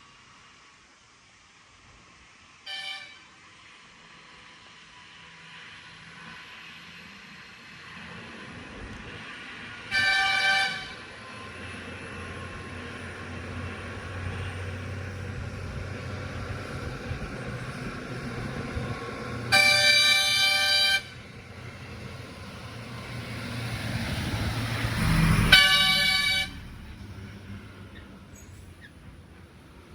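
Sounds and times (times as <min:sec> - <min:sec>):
truck horn blasts: 0:09.9 - 0:11.0, 0:19.5 - 0:21.2, 0:25.2 - 0:26.9
truck engine rumbling: 0:10.2 - 0:29.9.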